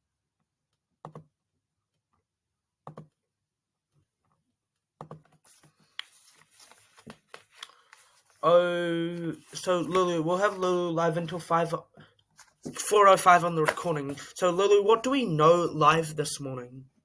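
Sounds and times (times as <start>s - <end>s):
rustling: 5.5s - 10.8s.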